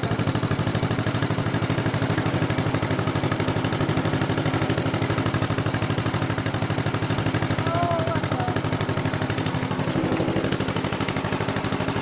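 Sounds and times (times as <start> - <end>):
tractor engine running at low speed: 0.0 - 12.0.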